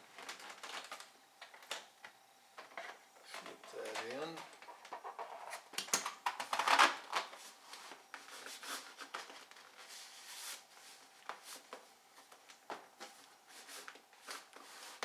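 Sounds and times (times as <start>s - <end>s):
plastic rustling and clicking: 0.0s - 9.8s.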